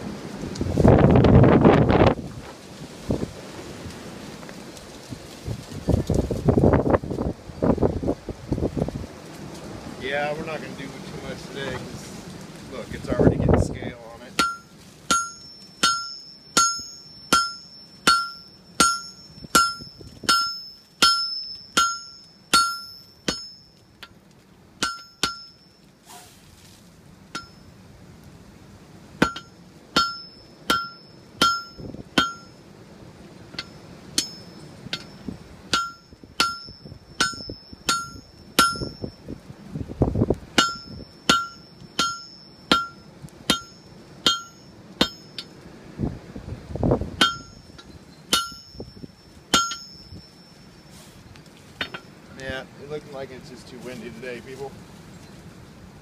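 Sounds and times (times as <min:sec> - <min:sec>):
wind rumbling on microphone: 0:00.0 - 0:15.3, 0:18.8 - 0:20.6, 0:31.4 - 0:42.1, 0:45.0 - 0:50.4
hammer striking steel on anvil: 0:14.4 - 0:23.6, 0:24.8 - 0:25.6, 0:27.3 - 0:27.6, 0:29.2 - 0:32.6, 0:33.6 - 0:39.0, 0:40.6 - 0:45.5, 0:47.2 - 0:48.9, 0:49.5 - 0:50.2, 0:51.8 - 0:52.1.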